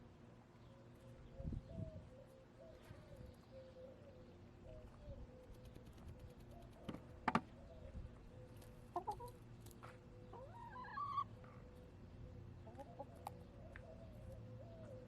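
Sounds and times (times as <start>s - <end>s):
hens clucking: 8.9s - 9.4s, 10.3s - 11.4s, 12.6s - 13.9s.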